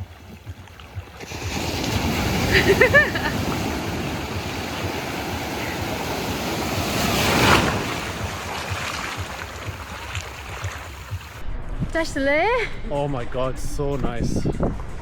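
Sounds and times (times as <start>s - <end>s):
ocean waves washing in: 0.0s - 11.4s.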